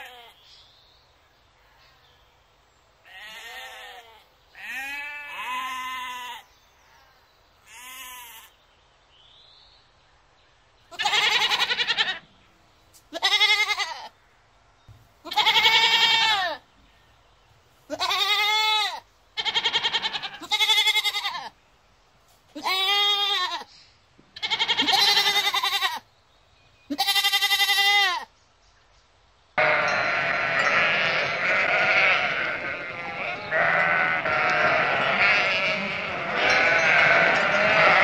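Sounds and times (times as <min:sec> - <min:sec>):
goats bleating: 0:03.1 - 0:06.4, 0:10.9 - 0:12.2, 0:13.1 - 0:14.1, 0:15.3 - 0:16.6, 0:17.9 - 0:21.5, 0:22.6 - 0:23.7, 0:24.4 - 0:26.0, 0:26.9 - 0:28.2, 0:29.6 - 0:38.0.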